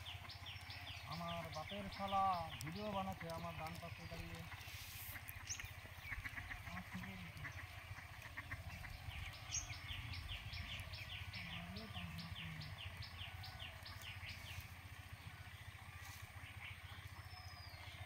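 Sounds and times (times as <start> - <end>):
fast run of ticks: 0.0 - 12.2
steady low rumble: 0.0 - 18.0.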